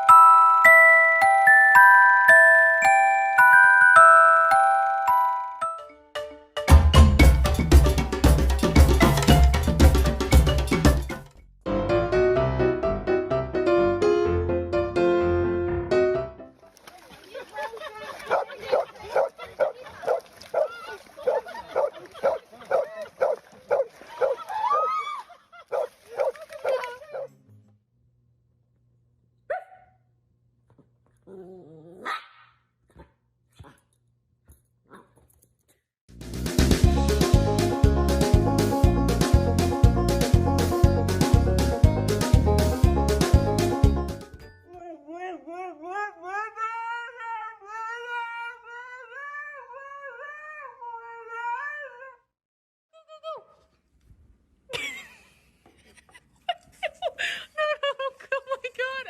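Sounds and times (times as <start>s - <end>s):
dog barking: 18.3s - 24.4s, 25.7s - 26.4s, 29.5s - 30.0s, 32.0s - 33.8s
dog howling: 44.9s - 52.2s.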